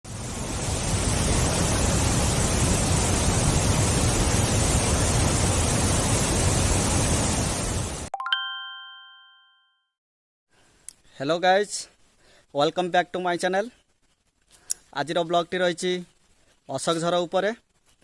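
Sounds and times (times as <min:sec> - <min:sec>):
waterfall rushing: 0:00.1 - 0:08.1
bell-like chime: 0:08.2 - 0:09.9.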